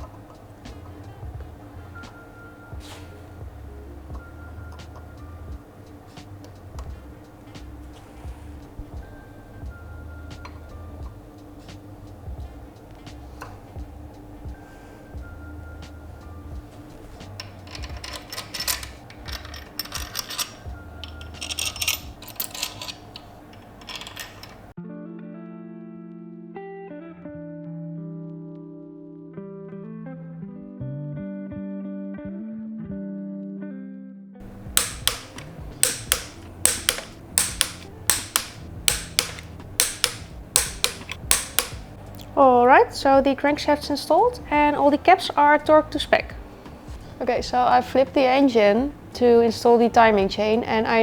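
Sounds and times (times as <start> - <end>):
hand wrench clicking: 17.2 - 24.7, 34.4 - 41.9
metal tools clinking and rattling: 17.3 - 24.8, 34.4 - 41.9.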